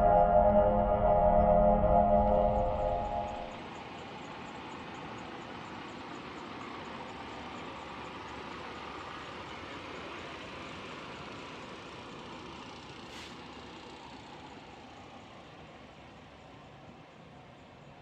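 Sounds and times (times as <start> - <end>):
air brake hiss: 13.1 - 13.4.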